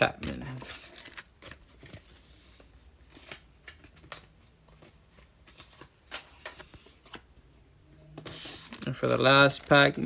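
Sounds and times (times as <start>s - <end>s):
trading cards being handled: 0.0s - 7.3s, 8.2s - 10.0s.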